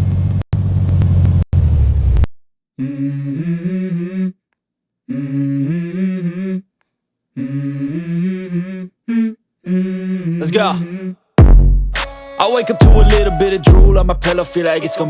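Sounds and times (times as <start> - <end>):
wordless hummed vocal melody: 2.8 - 4.4, 7.4 - 11.2, 12.0 - 15.0.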